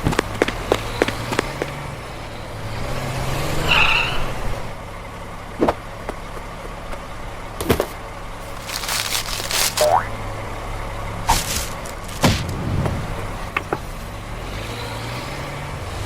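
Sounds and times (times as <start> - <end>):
tyre squeal: 0.8 - 4.7.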